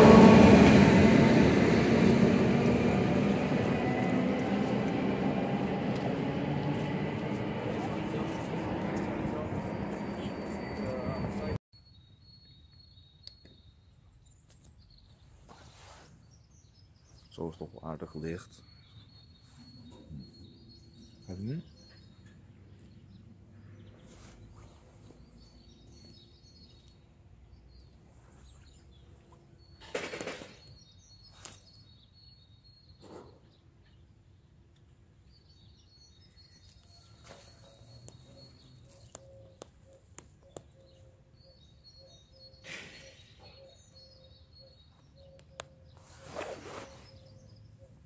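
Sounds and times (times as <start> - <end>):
loud rush of noise: 0.0 - 11.6
small birds chirping: 2.7 - 48.0.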